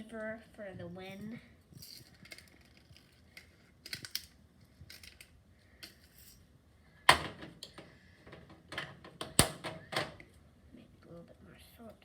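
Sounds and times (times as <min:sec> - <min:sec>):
container clicks and rattles: 0:01.8 - 0:05.3.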